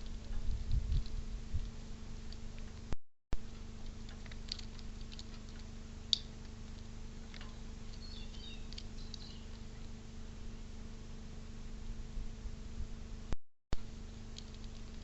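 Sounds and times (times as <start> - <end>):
low electrical hum: 0.0 - 15.0
faint high bird chirps: 7.5 - 9.9.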